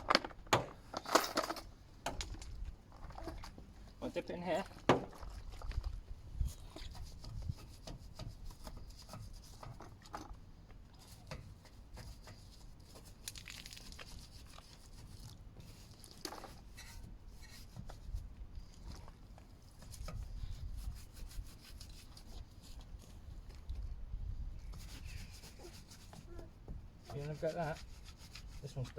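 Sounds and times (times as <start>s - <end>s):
hand scrubbing a car: 6.4s - 10.1s, 10.9s - 23.5s, 24.6s - 28.9s.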